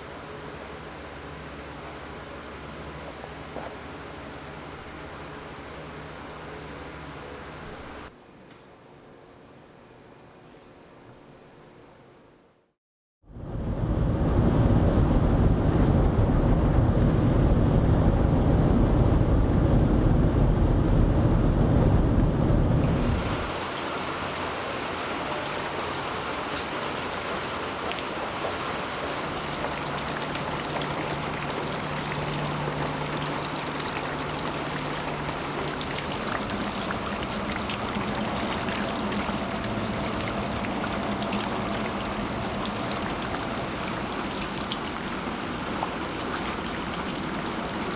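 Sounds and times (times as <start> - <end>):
thunder rumbling: 13.4 - 47.9
rain pattering: 22.8 - 47.9.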